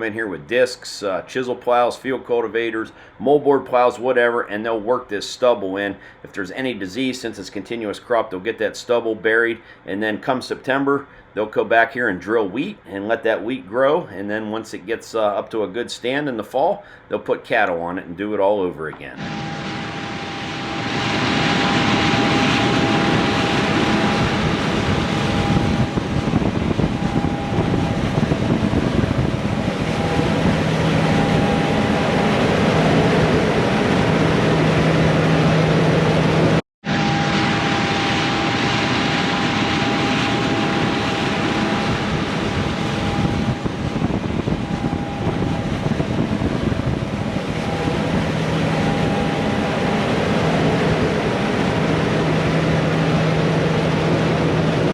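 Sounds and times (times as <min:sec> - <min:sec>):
harvest machinery engine drone: 0:19.2 - 0:54.9.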